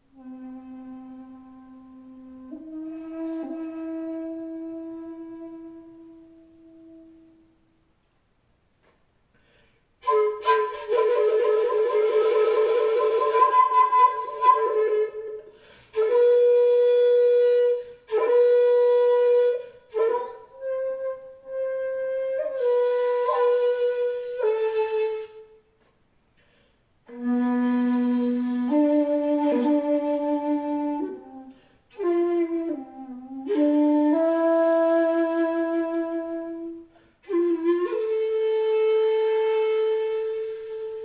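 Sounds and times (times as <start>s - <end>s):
bamboo flute long notes: 0.0s - 7.7s, 10.0s - 25.6s, 27.1s - 41.0s.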